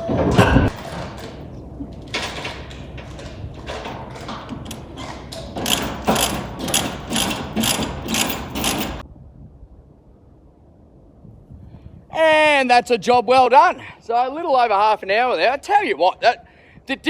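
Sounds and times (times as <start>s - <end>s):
ratchet strap clicking: 5.6s - 9.0s.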